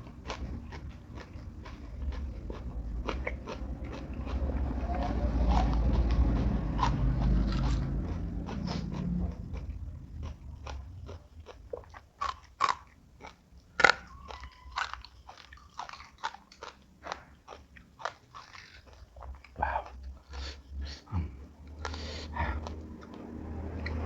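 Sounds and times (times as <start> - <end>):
person chewing food: 0.0 - 24.0
crisp food crunches: 8.5 - 19.5.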